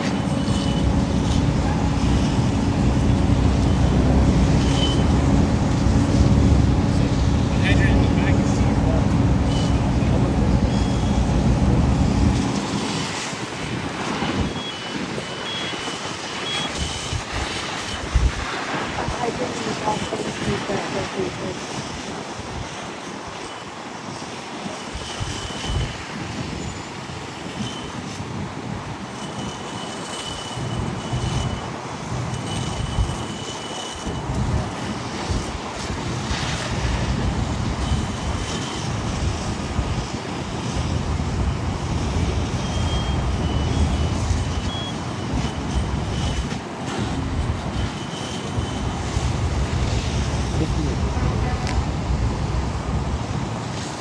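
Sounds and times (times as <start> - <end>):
outdoor rumble: 0.0 - 14.4
wind buffeting microphone: 0.0 - 23.5, 25.0 - 54.0.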